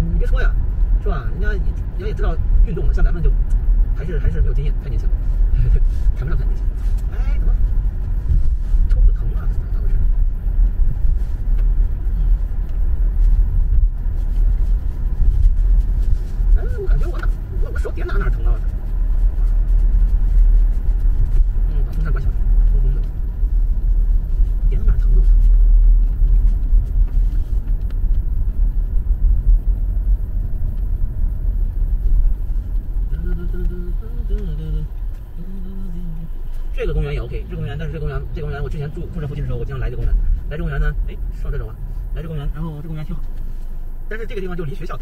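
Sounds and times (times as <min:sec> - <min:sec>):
road and engine noise: 0:00.0 - 0:45.0.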